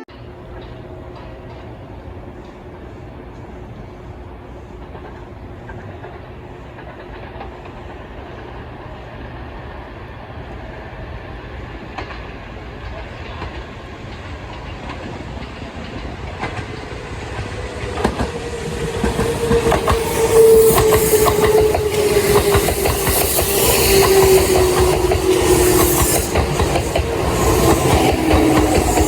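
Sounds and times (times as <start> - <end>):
electric train approaching: 0.0 - 29.0
wheels clicking over rail joints: 11.9 - 29.0
train motor whine: 15.9 - 29.0.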